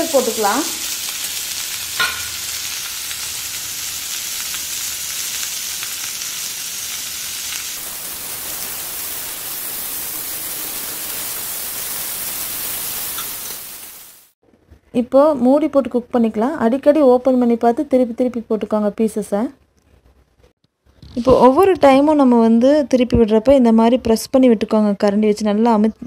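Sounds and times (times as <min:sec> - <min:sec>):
chicken sizzling on a griddle: 0:00.0 - 0:14.4.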